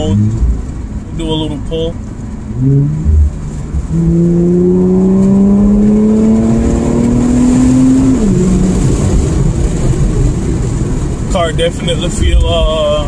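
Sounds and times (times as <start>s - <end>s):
car engine accelerating: 0.0s - 11.5s.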